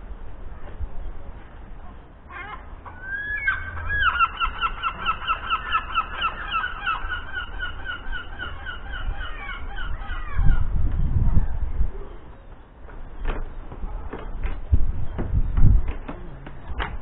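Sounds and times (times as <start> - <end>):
bird calling repeated clear notes: 2.3 - 10.6.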